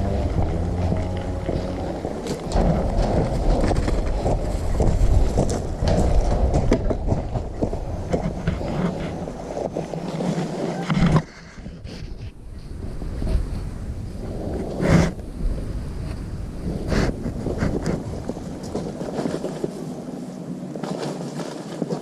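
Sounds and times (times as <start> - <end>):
low vehicle rumble: 0.0 - 11.2
knocks and rattles: 0.0 - 11.3
wind buffeting microphone: 0.0 - 22.0.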